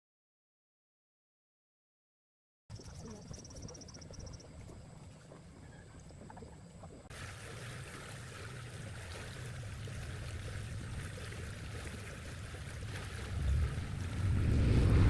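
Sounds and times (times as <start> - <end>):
running water rushing: 4.4 - 15.0
low rumble: 13.0 - 15.0.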